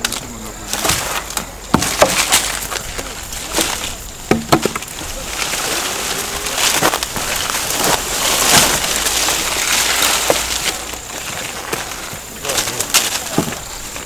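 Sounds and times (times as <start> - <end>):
rustling hiss: 0.0 - 14.0
wood cracking and snapping: 0.0 - 14.0.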